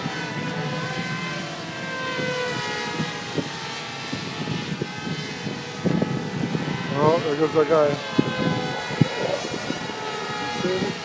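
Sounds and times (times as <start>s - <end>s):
model plane motors whining: 0.0s - 11.0s.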